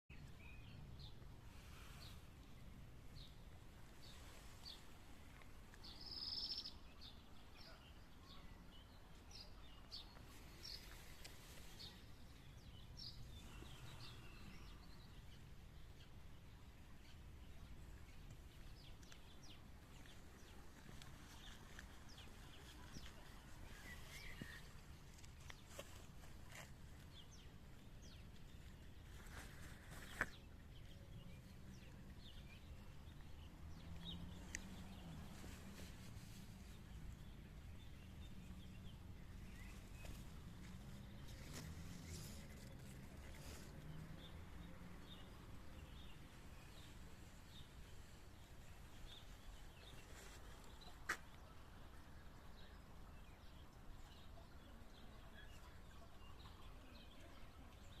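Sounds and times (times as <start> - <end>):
songbird chirping: 0.1 - 58.0
bird chirps: 5.9 - 15.3.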